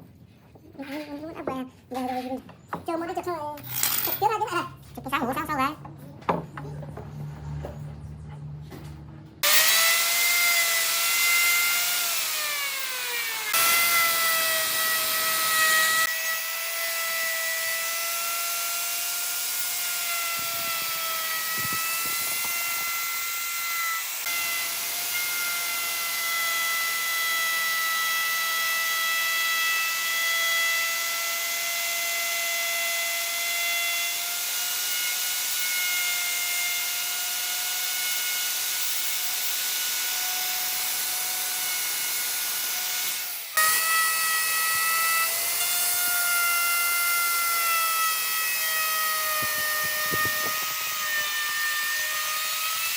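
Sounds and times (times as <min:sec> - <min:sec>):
electric power tool whining: 0:09.4 - 0:52.9.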